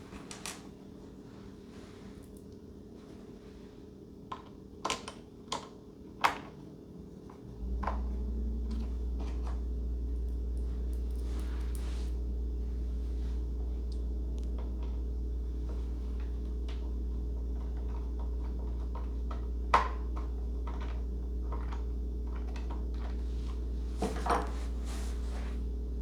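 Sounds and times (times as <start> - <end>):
steady low hum: 6.5 - 26.0.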